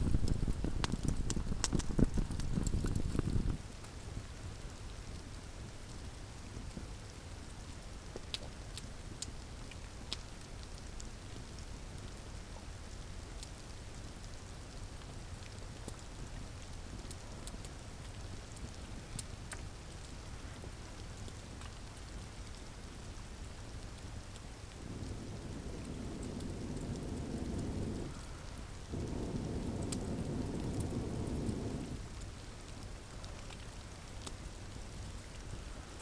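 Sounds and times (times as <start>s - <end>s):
campfire crackling and popping: 0.0s - 3.6s, 15.0s - 20.2s, 21.1s - 36.0s
low rumble: 24.8s - 32.2s.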